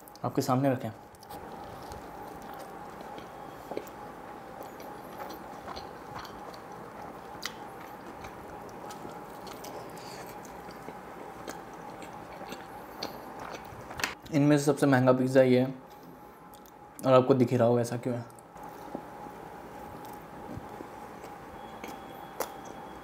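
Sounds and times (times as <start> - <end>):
electric fan hum: 0.0 - 23.0
person biting and chewing: 1.1 - 4.0, 4.6 - 14.2.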